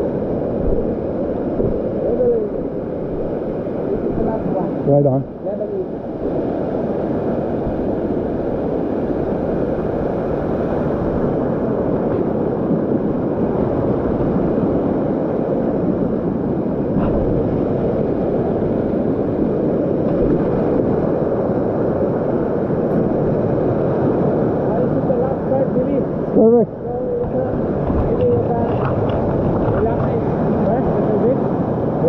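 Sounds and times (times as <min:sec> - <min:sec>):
waterfall roaring: 0:24.6 - 0:31.5.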